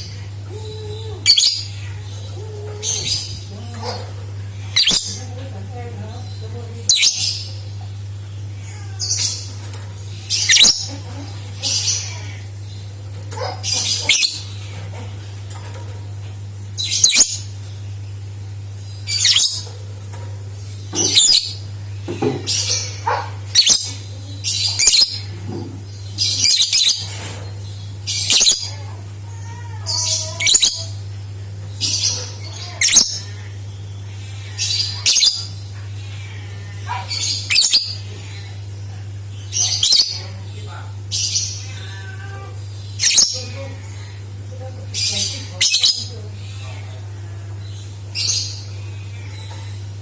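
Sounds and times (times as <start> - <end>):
steady low hum: 0.0 - 50.0
lovebird chirping: 10.3 - 11.0, 19.0 - 19.7, 20.9 - 21.6.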